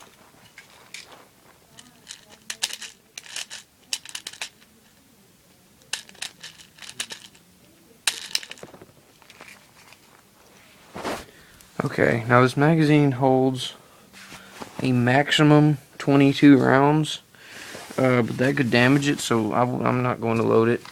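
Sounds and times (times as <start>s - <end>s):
plastic pellets clicking and rattling: 0.0s - 5.0s, 5.8s - 10.0s.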